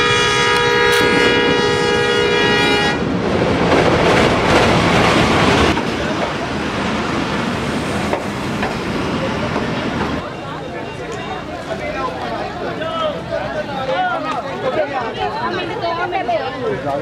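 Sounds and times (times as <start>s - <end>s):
diesel locomotive horn: 0.0s - 3.1s
locomotive engine and wheel noise: 0.0s - 17.0s
passenger coaches rolling by: 0.0s - 17.0s.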